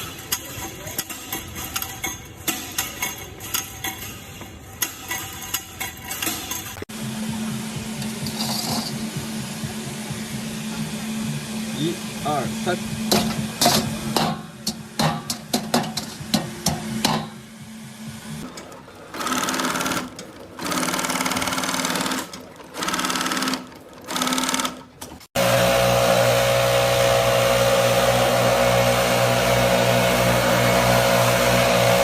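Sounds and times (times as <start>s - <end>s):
loud machine hum: 6.8s - 18.5s, 19.1s - 32.0s
small machine running in bursts: 6.9s - 15.0s, 19.1s - 32.0s.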